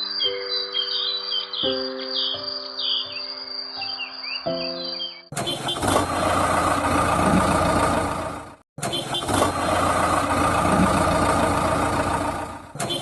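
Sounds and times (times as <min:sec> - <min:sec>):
music: 0:00.0 - 0:05.3
birdsong: 0:00.0 - 0:06.4
small engine running: 0:05.4 - 0:13.0.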